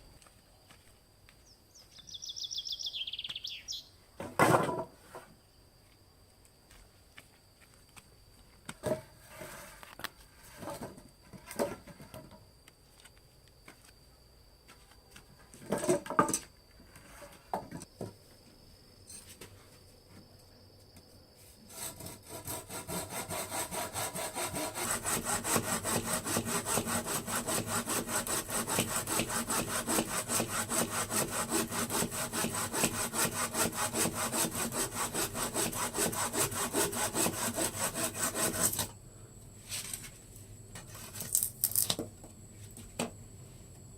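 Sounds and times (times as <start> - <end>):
faint high whine: 4.9 - 22.4
hand saw cutting wood: 21.7 - 39.0.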